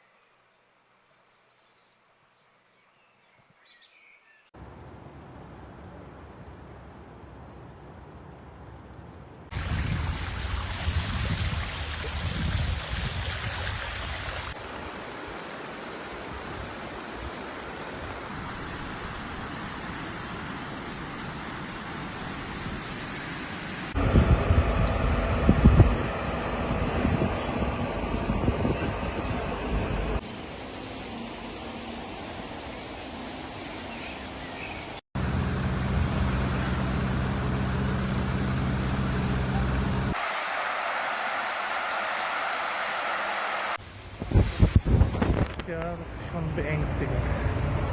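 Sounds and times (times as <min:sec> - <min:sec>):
rushing floodwater: 0:09.5 - 0:24.0, 0:30.4 - 0:47.7
motor hum: 0:24.0 - 0:30.2, 0:35.2 - 0:40.2
steady rushing noise: 0:40.0 - 0:47.9.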